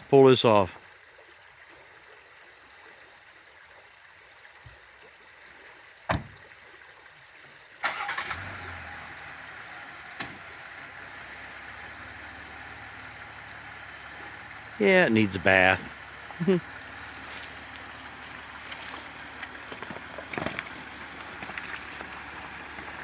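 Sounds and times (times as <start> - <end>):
car door shutting: 6.1 - 6.4, 10.2 - 10.4
car engine cranking and idling: 7.8 - 23.0.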